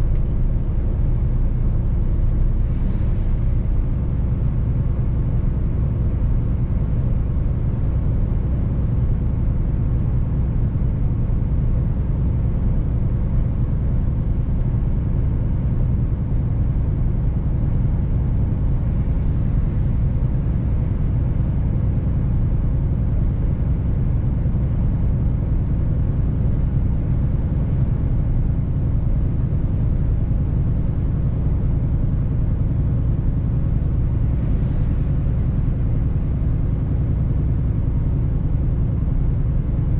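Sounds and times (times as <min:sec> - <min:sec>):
truck engine drone: 0:00.0 - 0:07.4, 0:09.8 - 0:23.5, 0:31.5 - 0:39.6.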